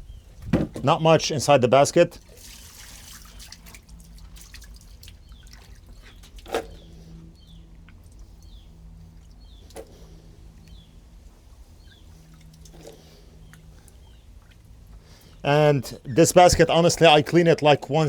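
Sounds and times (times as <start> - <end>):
knocks on pump housing: 0.4 - 0.9
bird chirping: 5.2 - 11.0.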